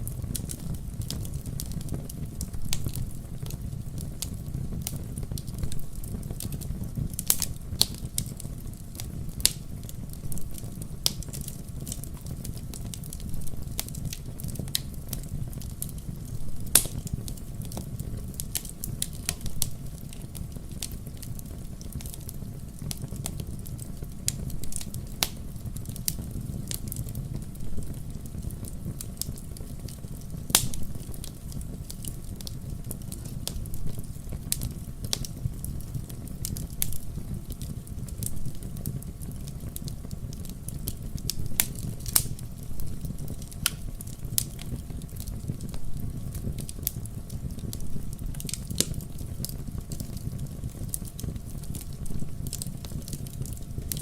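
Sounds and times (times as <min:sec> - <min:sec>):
low rumble of flames: 0:00.0 - 0:54.0
wood fire crackling: 0:00.0 - 0:54.0
sharp pops and snaps: 0:16.7 - 0:17.1, 0:24.3 - 0:25.4, 0:30.5 - 0:30.9, 0:40.4 - 0:44.8.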